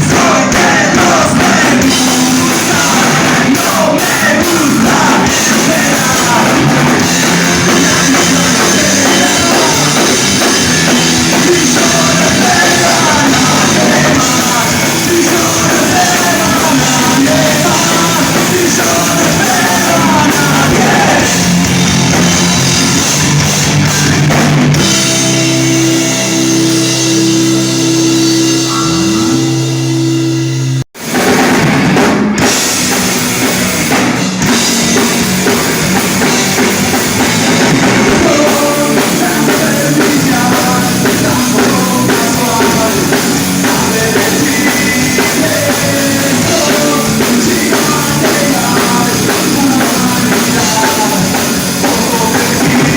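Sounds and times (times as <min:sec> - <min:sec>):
person singing: 0:00.0 - 0:21.6, 0:26.6 - 0:30.3, 0:38.0 - 0:52.9
rock band playing: 0:00.0 - 0:52.9.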